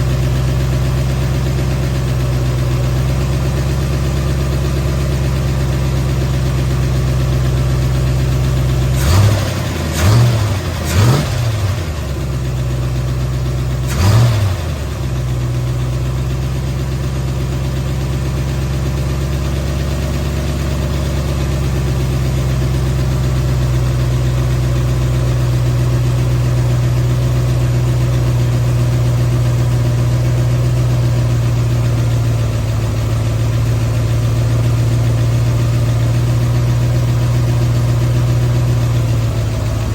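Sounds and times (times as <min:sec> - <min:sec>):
car engine idling: 0:00.0 - 0:39.9
engine throttle blips: 0:05.2 - 0:16.1.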